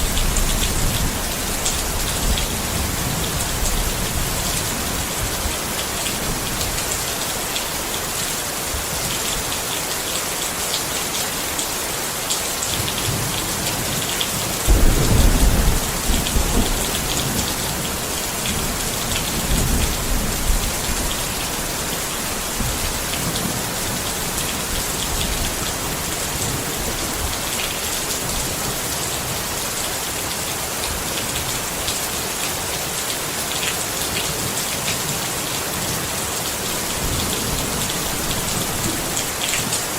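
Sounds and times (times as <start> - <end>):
rain pattering on a tent: 0.0 - 39.9
thunder rumbling: 14.7 - 22.0.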